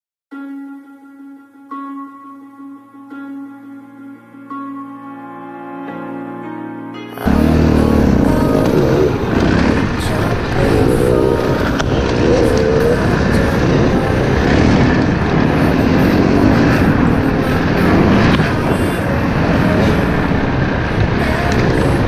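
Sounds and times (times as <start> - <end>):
dirt bike engines revving: 7.2 - 22.0.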